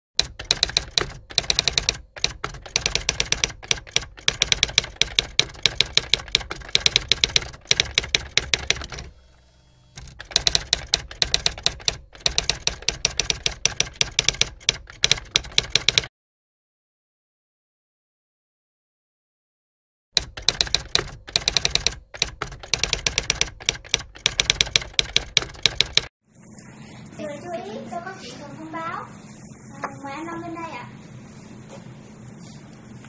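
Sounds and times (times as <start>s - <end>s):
typewriter key strikes: 0.2s - 9.1s, 10.0s - 16.1s, 20.2s - 26.1s.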